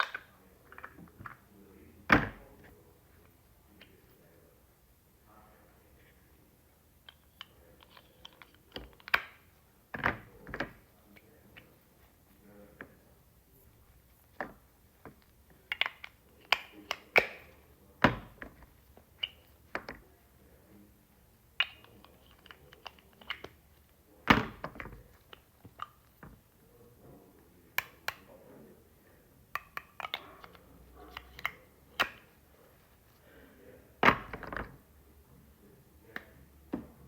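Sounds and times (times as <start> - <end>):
toy eggs clicking and tapping: 7.0 - 9.5, 13.9 - 20.1, 21.5 - 26.4, 29.5 - 32.4.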